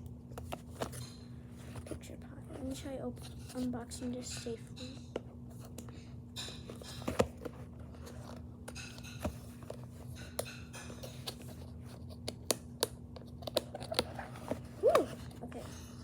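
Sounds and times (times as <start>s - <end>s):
packaging clicks and taps: 12.1s - 15.2s.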